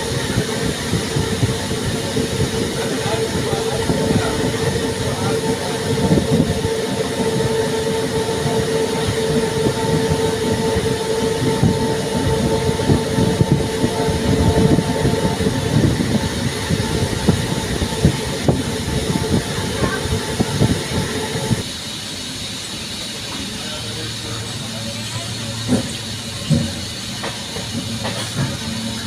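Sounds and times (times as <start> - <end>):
steady whine: 0.0 - 21.9
train rumble: 0.0 - 29.0.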